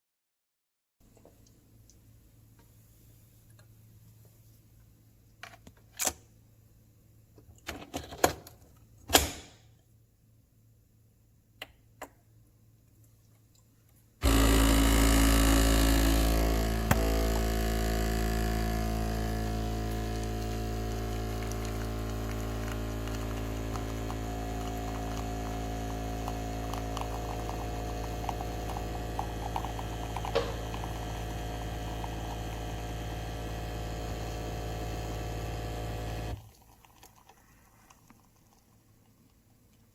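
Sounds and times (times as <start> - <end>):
espresso machine pump humming: 14.2 - 36.6.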